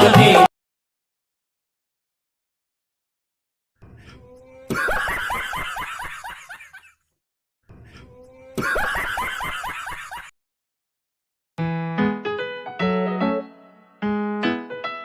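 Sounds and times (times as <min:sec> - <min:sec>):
rapid snickering laughter: 0:04.7 - 0:07.0, 0:08.6 - 0:10.3
piano tune: 0:11.6 - 0:15.0.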